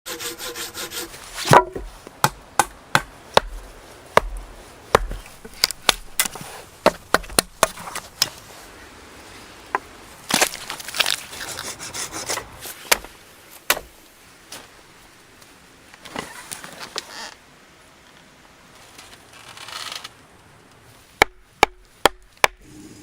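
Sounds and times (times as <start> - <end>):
wood being chopped: 1.4 - 8.4, 12.9 - 14.0, 21.2 - 22.6.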